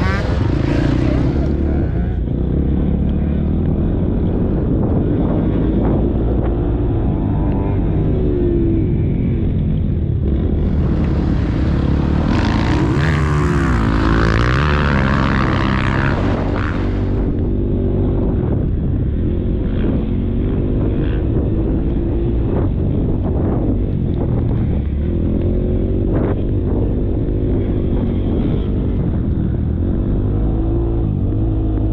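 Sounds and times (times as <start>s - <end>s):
motocross bike engine revving: 0.0s - 18.3s
wind rush on microphone: 0.0s - 31.9s.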